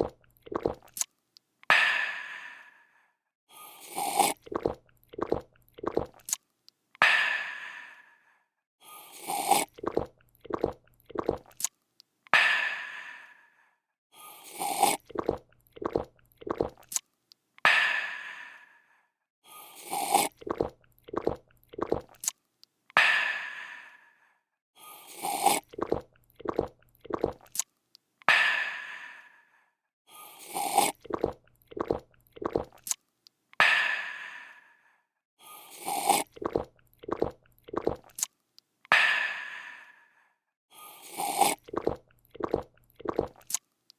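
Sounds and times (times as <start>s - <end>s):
person slurping: 0.0s - 1.0s, 3.6s - 6.4s, 9.0s - 11.7s, 14.2s - 17.0s, 19.6s - 22.3s, 24.8s - 27.6s, 30.2s - 33.0s, 35.5s - 38.3s, 40.8s - 43.6s
quick gulps: 0.0s - 1.0s, 3.7s - 6.4s, 9.1s - 11.7s, 14.4s - 17.1s, 19.7s - 22.4s, 24.9s - 27.7s, 30.4s - 33.0s, 35.7s - 38.3s, 40.9s - 43.6s.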